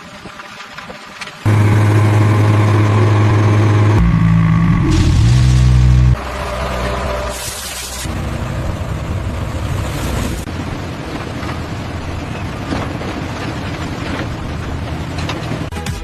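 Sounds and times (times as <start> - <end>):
heavy machinery engine running: 1.4 - 9.9.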